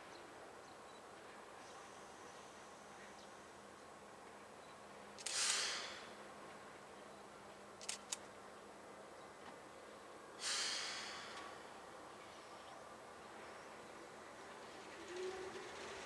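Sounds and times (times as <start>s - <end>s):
air hissing out: 5.2s - 6.0s, 10.4s - 11.4s
light clicks: 7.8s - 8.3s.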